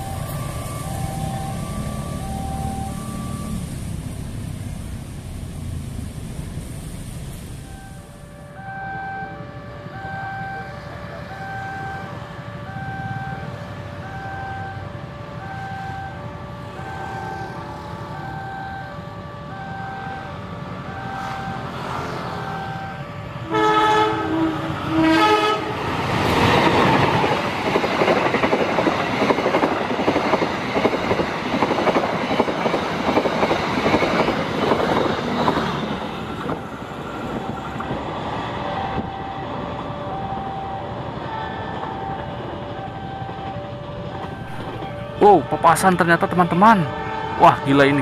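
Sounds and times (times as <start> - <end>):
level crossing warning alarm: 0.0 - 3.9, 7.6 - 48.0
passing train rumble: 0.0 - 48.0
locomotive horn blasts: 7.8 - 20.4, 22.5 - 25.9, 44.3 - 48.0
train wheel clatter: 26.1 - 39.1.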